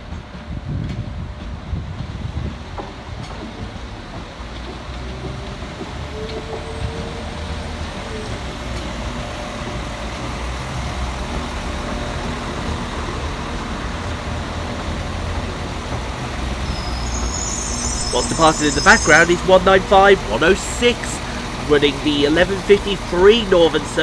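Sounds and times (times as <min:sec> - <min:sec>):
diesel train engines rumbling: 0:00.0 - 0:24.0
thin whine: 0:16.6 - 0:24.0.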